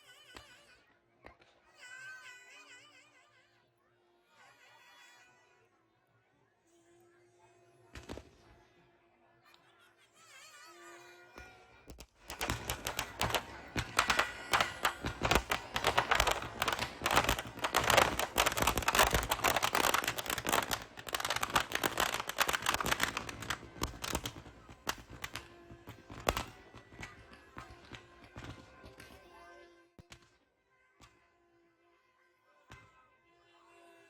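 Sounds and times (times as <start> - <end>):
firecrackers bursting: 12.2 - 29.1.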